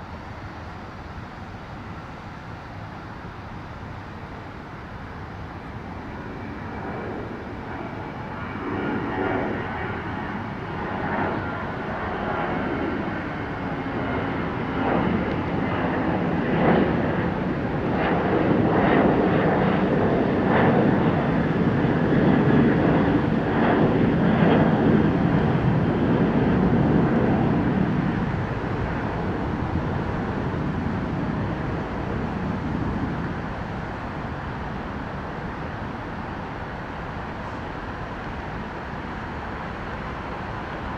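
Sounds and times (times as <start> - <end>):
jet airliner engines roaring: 0.0 - 40.9.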